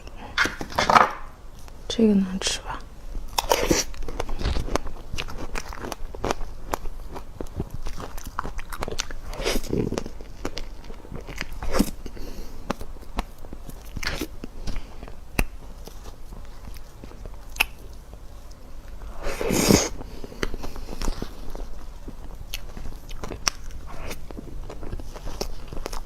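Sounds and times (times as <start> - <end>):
crunchy bite: 3.3 - 16.0, 16.6 - 18.0
chewing: 3.3 - 26.0
wet mouth clicks: 17.5 - 17.8.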